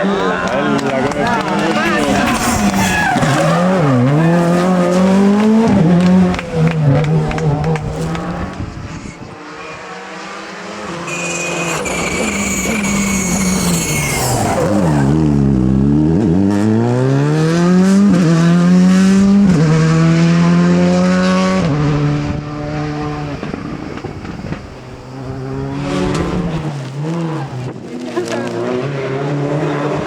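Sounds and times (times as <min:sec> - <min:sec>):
rally car engine revving: 0:00.0 - 0:30.0
tyres squealing: 0:00.8 - 0:05.1, 0:11.0 - 0:15.2.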